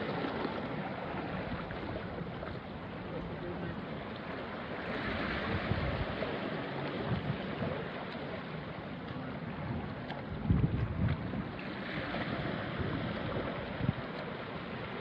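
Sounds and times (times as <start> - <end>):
small waves washing on rocks: 0.0 - 15.0
wind on microphone: 4.9 - 7.9, 9.5 - 14.4.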